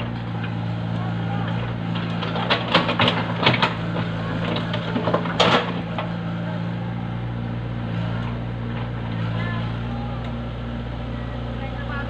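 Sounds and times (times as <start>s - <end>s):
engine droning: 0.0s - 12.0s
sharp knocks and clatter: 1.9s - 6.1s.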